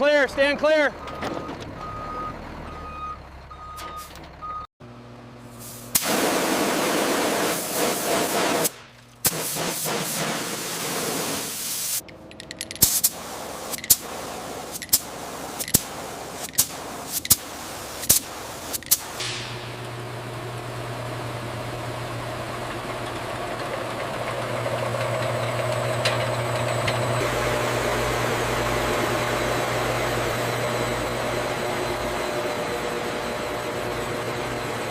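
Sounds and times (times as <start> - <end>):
loud hissing machine noise: 5.5 - 12.0, 12.7 - 23.8, 26.8 - 34.9
sharp metal clanks: 12.0 - 14.1, 18.8 - 19.8.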